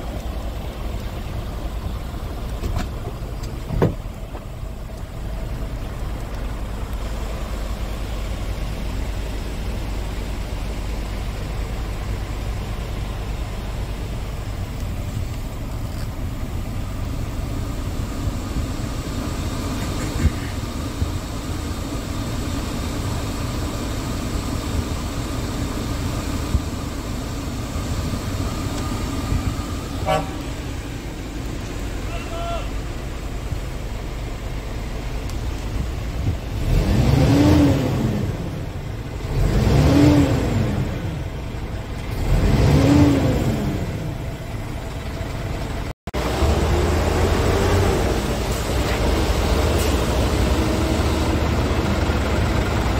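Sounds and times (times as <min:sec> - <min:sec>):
diesel truck engine droning: 0:00.0 - 0:52.9.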